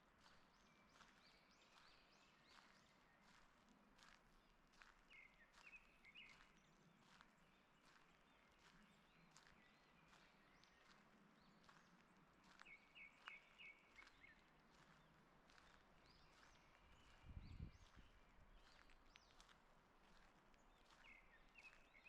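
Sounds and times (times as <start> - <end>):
footsteps on forest path: 0.2 - 22.0
small birds chirping: 5.1 - 22.0.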